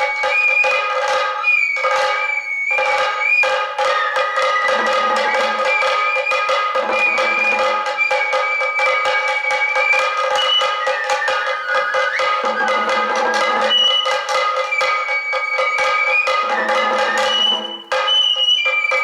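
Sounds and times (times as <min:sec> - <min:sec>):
bamboo flute melody: 0:00.0 - 0:19.0
rapid drum strokes: 0:03.1 - 0:18.4.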